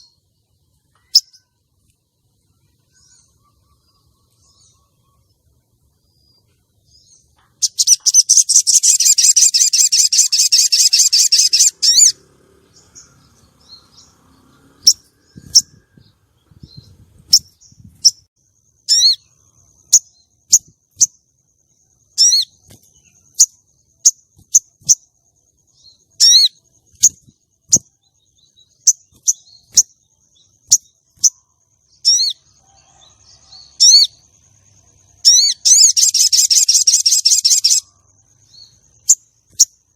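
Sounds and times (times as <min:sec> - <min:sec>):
faint steady high tone: 0:00.0 - 0:08.8
bird trilling and chirping: 0:00.8 - 0:01.5, 0:06.1 - 0:21.2, 0:21.8 - 0:39.9.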